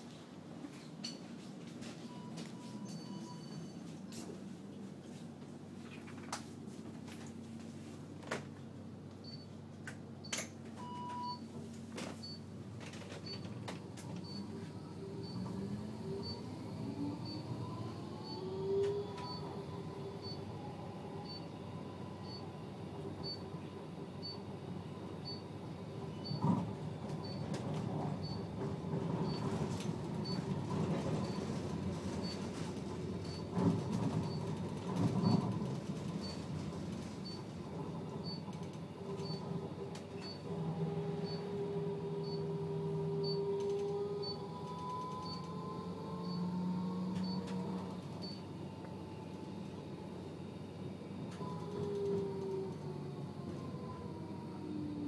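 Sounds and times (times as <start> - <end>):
tram motor whine: 11.2 - 55.0.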